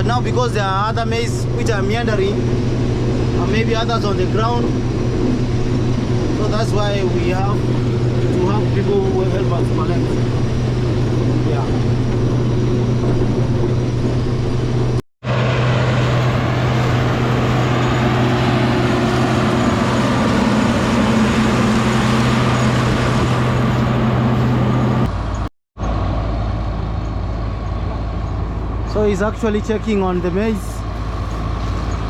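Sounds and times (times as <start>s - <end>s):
diesel engine humming: 0.0s - 32.0s
rush of machinery: 0.0s - 32.0s.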